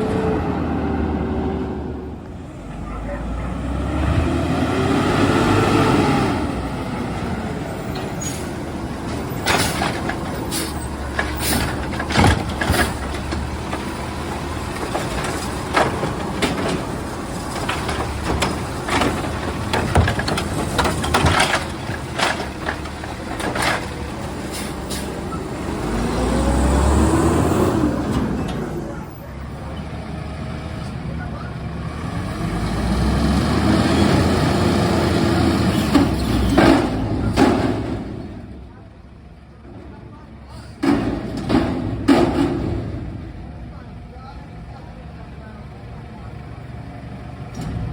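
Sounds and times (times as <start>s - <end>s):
garbage truck engine revving: 0.0s - 38.8s
sharp metal clanks and bangs: 8.0s - 13.9s, 35.8s - 38.4s, 40.8s - 43.4s.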